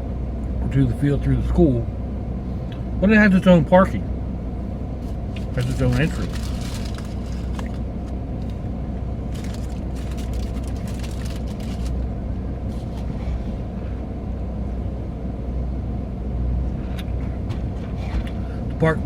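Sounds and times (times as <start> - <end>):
car engine rumble from cabin: 0.0 - 19.0.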